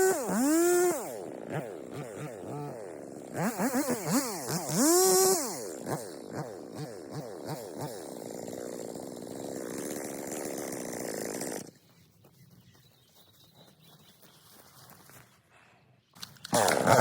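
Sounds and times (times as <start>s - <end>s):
chainsaw engine surging: 0.0s - 11.8s, 16.4s - 17.0s.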